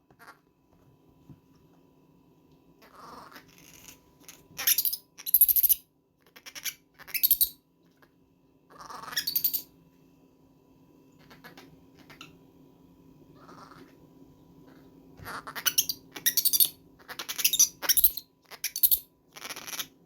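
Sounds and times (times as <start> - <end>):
baby monkey screaming: 2.8 - 7.6, 8.7 - 9.7, 11.2 - 12.3, 13.4 - 14.0, 14.7 - 20.0.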